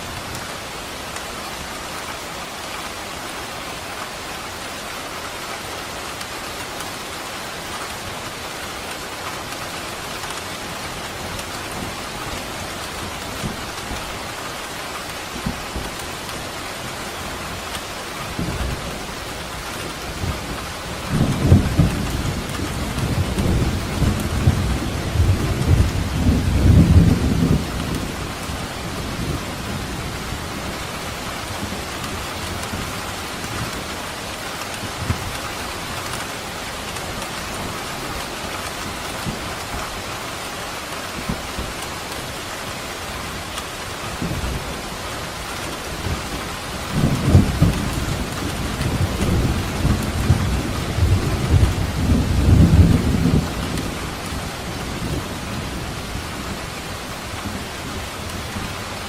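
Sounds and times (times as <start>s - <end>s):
heavy rain falling: 0.0s - 59.0s
thunder rumbling: 20.2s - 30.8s, 44.1s - 58.8s.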